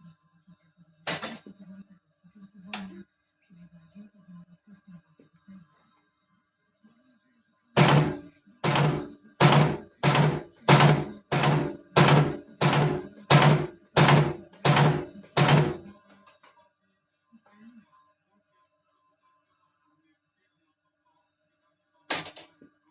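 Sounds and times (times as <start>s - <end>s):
punching machine thunks: 7.8s - 15.9s.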